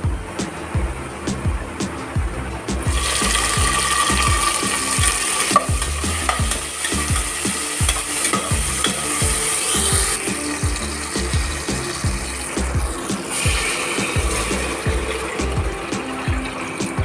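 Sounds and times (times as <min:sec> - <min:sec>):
vegetables sizzling in hot oil: 0:02.9 - 0:14.8.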